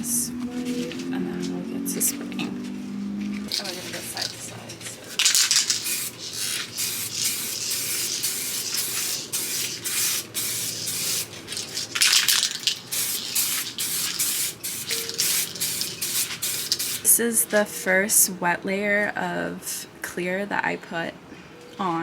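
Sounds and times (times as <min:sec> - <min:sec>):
aerosol spray hissing: 0:05.1 - 0:17.1.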